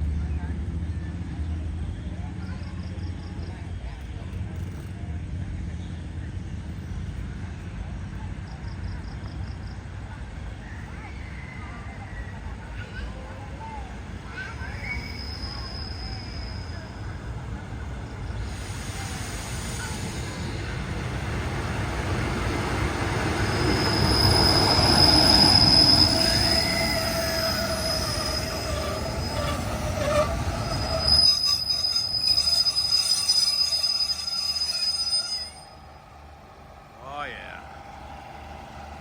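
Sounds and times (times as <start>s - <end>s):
low train rumble: 0.0s - 39.0s
train wheels squealing on rails: 8.4s - 36.2s.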